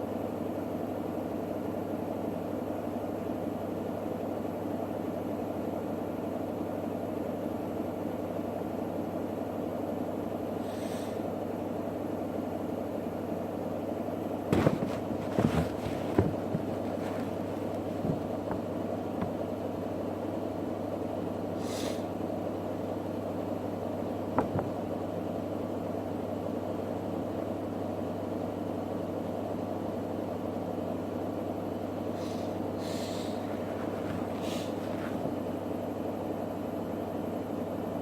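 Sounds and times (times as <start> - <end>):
washing machine motor hum: 14.5 - 19.7
washing machine knocks: 24.4 - 24.8.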